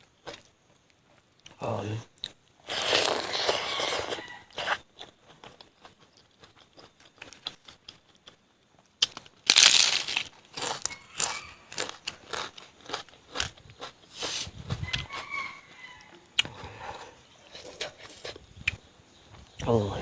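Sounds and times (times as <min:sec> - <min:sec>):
close-miked eating: 0:00.0 - 0:20.0
chewing crunches: 0:02.2 - 0:14.2.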